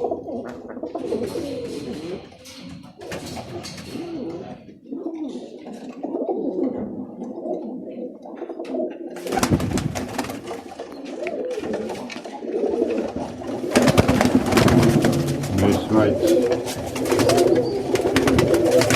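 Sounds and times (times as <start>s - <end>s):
pigeons cooing: 0.0s - 18.9s
rustling and knocking: 13.0s - 18.9s.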